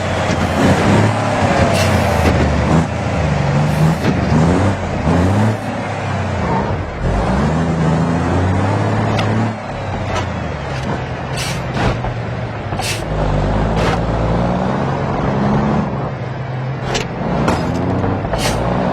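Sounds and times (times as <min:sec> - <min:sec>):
heavy truck engine revving: 0:00.0 - 0:18.9.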